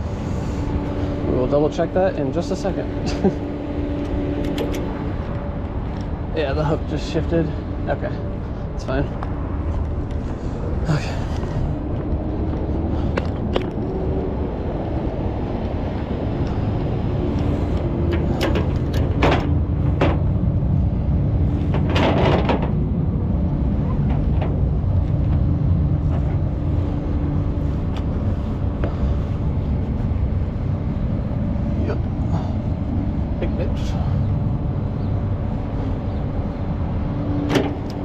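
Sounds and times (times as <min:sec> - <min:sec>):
truck engine running: 0:00.0 - 0:38.0
short knocks and rattles: 0:18.0 - 0:20.4, 0:21.6 - 0:22.9.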